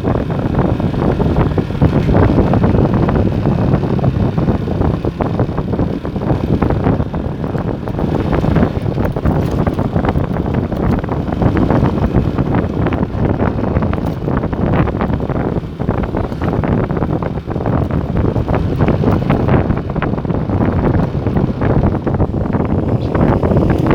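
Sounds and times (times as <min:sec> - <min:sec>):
motorcycle engine running: 0:00.0 - 0:23.9
wind buffeting microphone: 0:00.0 - 0:23.9.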